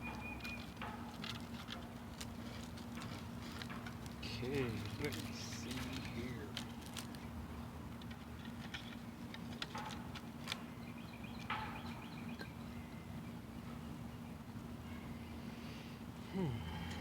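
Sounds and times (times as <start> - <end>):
wooden sticks clicking and knocking: 0.0 - 10.7
steady low hum: 0.0 - 17.0.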